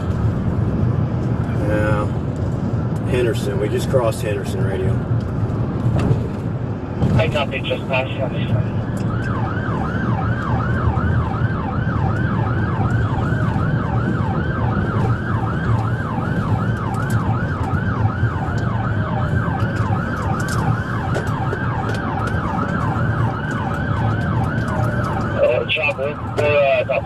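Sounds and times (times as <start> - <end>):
road noise: 0.0 - 27.0
vehicle engine rumble: 0.0 - 27.0
police siren yelping: 7.2 - 27.0.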